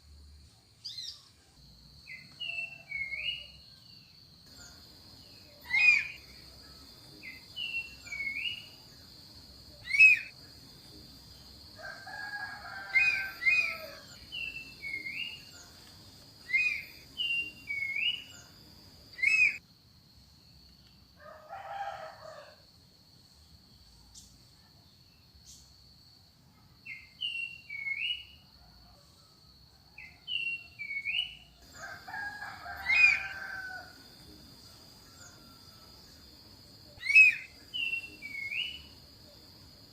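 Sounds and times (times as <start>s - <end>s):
birds whistling calls: 5.6s - 6.3s, 9.8s - 10.3s, 12.9s - 15.5s, 16.4s - 18.4s, 19.2s - 19.6s, 32.8s - 33.4s, 37.0s - 38.9s
harsh crow-like bird call: 12.0s - 14.2s, 31.8s - 34.0s.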